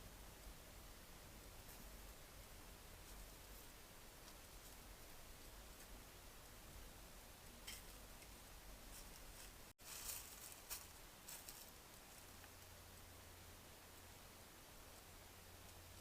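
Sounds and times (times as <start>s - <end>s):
faint rustles: 2.9s - 14.2s.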